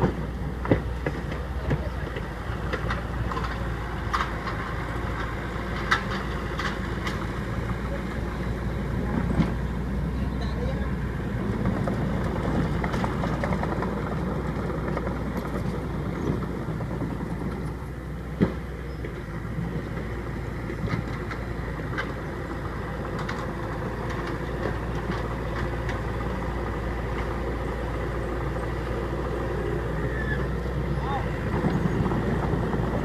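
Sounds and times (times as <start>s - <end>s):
vehicle engine running: 0.0s - 33.0s.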